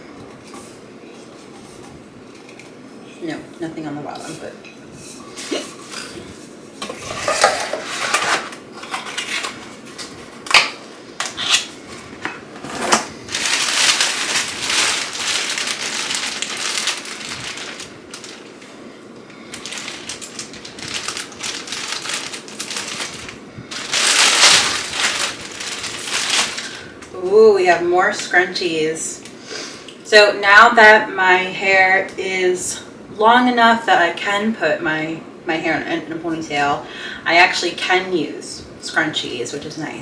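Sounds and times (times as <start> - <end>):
packaging crackling and crinkling: 5.6 - 27.1.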